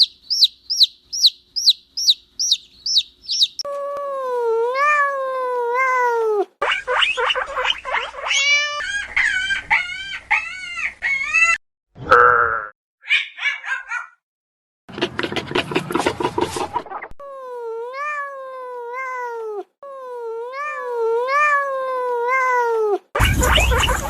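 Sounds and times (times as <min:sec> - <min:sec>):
cat meowing: 0:03.6 - 0:06.5, 0:08.2 - 0:11.6, 0:17.3 - 0:23.2.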